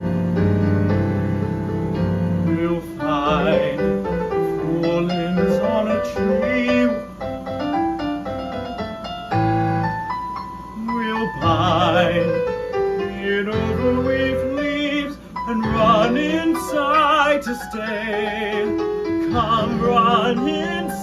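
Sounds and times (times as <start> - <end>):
piano accompaniment: 0.0 - 21.0
man singing with vibrato: 2.4 - 7.4, 10.8 - 21.0.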